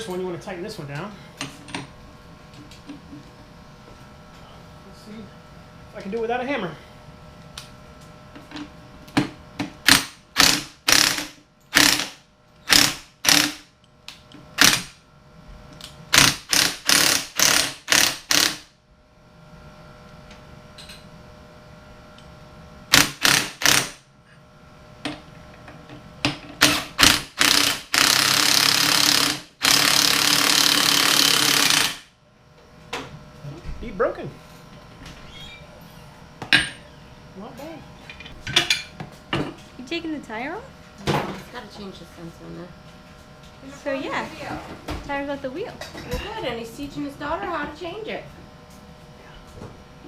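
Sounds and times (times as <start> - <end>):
loud continuous rasping: 26.6 - 32.1.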